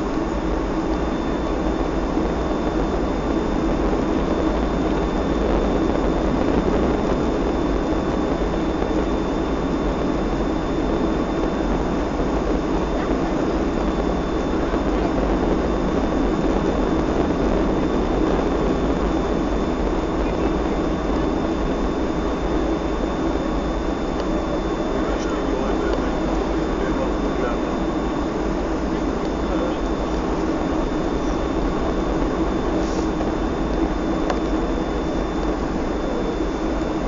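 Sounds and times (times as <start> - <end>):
jet engine cabin rumble: 0.0 - 37.0
thin high whine: 0.0 - 37.0.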